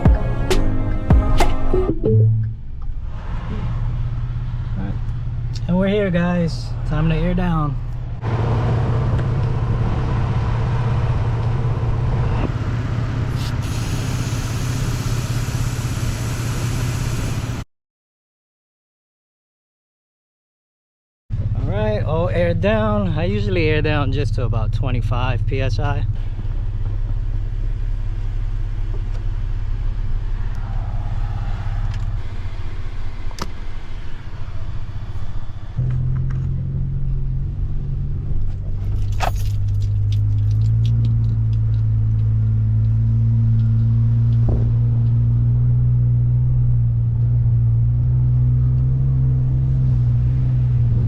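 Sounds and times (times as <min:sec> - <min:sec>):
truck engine and road rumble: 0:00.0 - 0:17.7, 0:21.3 - 0:51.0
air hissing out of tire: 0:13.3 - 0:17.6.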